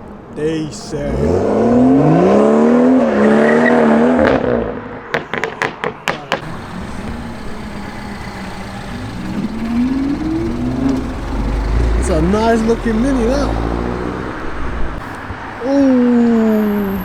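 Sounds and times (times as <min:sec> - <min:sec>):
second engine revving: 0:01.0 - 0:04.4, 0:06.4 - 0:15.0
car engine revving: 0:01.0 - 0:04.9, 0:06.4 - 0:15.5
sharp exhaust pops: 0:05.1 - 0:14.7.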